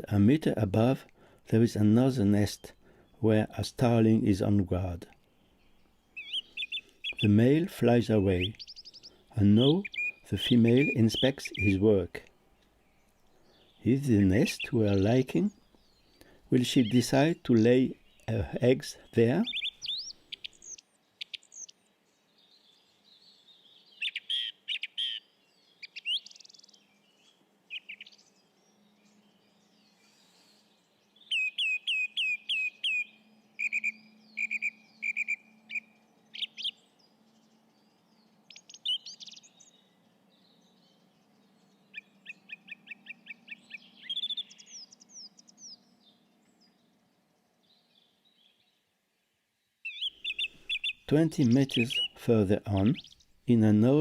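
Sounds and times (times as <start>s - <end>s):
birds chirping and whistling: 5.4s - 48.8s, 49.8s - 54.0s.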